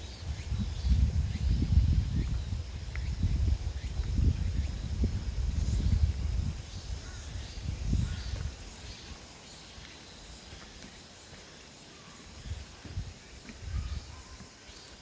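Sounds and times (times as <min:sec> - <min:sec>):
wind buffeting microphone: 0:00.0 - 0:09.3, 0:12.4 - 0:14.5
faint bird calls: 0:10.4 - 0:15.0.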